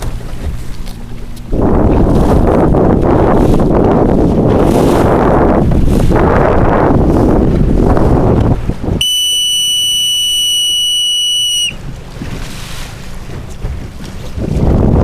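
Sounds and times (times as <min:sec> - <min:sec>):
wind buffeting microphone: 0:00.0 - 0:15.0
long whistle blast: 0:09.0 - 0:11.8.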